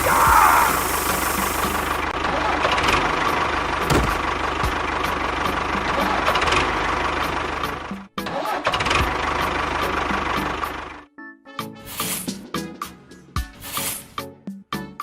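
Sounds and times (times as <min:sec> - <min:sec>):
engine knocking rhythmically: 0:00.7 - 0:11.0.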